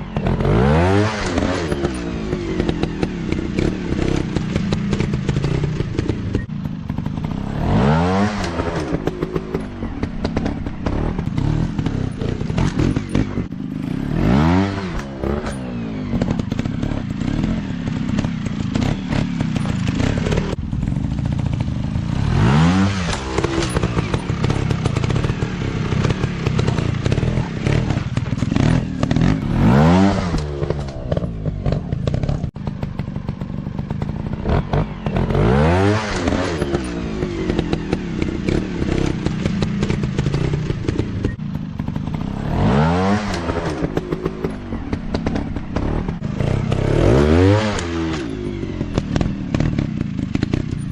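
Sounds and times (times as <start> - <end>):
dirt bike engines revving: 0.0 - 50.9.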